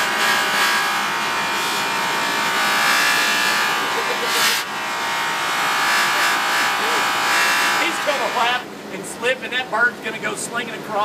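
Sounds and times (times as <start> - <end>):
electric polishing buffer running: 0.0 - 8.6.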